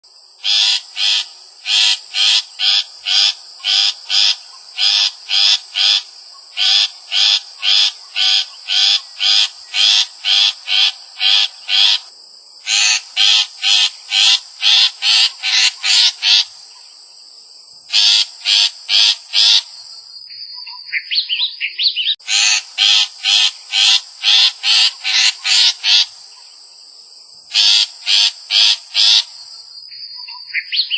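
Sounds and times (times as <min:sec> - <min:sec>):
harsh animal calls: 0:00.4 - 0:16.6, 0:17.9 - 0:19.7, 0:22.2 - 0:26.2, 0:27.5 - 0:29.4.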